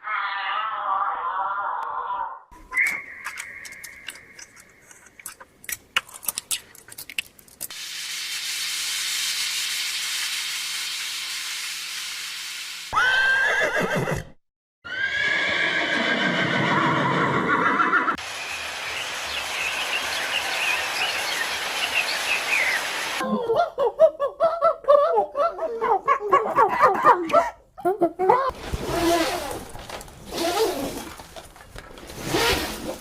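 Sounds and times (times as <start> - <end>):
horse whinnying: 13.0 - 18.2
steady hiss: 18.2 - 23.2.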